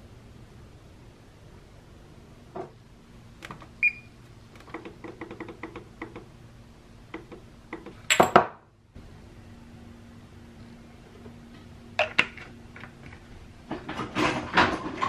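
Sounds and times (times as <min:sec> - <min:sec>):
oven keypad beep: 0:03.8 - 0:04.2.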